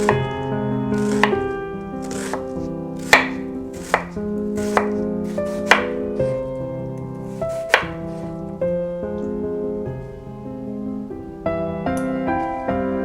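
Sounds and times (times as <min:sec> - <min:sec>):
piano music: 0:00.0 - 0:13.0
knife cutting on cutting board: 0:01.0 - 0:01.4, 0:02.0 - 0:06.4, 0:07.3 - 0:08.3.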